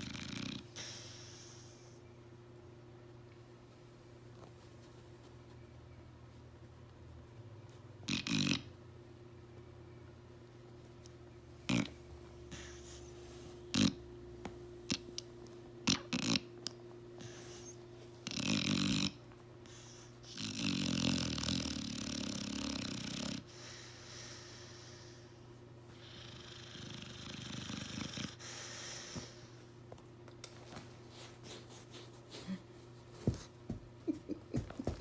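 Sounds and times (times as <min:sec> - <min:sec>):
dog snoring: 0:00.0 - 0:01.0, 0:08.0 - 0:08.8, 0:11.6 - 0:14.1, 0:15.8 - 0:16.5, 0:17.2 - 0:25.2, 0:26.0 - 0:29.4
dog snorting and snuffling: 0:08.0 - 0:08.7, 0:11.6 - 0:14.0, 0:15.8 - 0:23.5.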